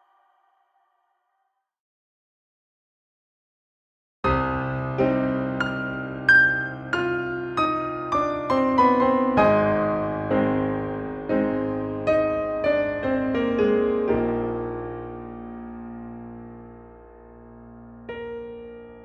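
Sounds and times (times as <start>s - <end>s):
piano melody with reverb: 4.3s - 19.0s.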